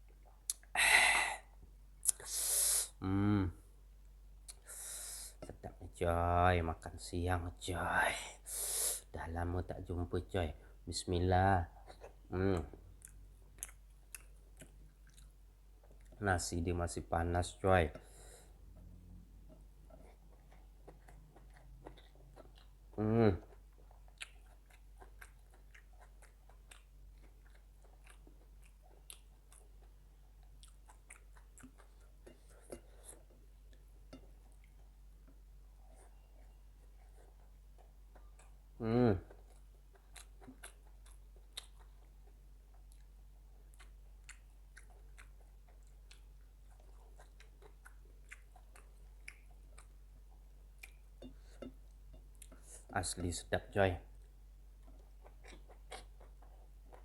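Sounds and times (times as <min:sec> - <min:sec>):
quiet wet chewing: 0:00.0 - 0:02.4, 0:04.0 - 0:06.0, 0:08.3 - 0:57.0
wet mouth clicks and smacks: 0:00.4 - 0:00.7.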